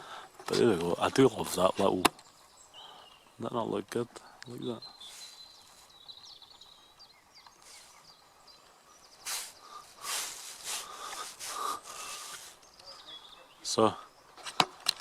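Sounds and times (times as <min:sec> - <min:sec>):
small birds chirping: 0:00.0 - 0:15.0
bursts of hiss: 0:07.6 - 0:08.1, 0:09.2 - 0:12.7.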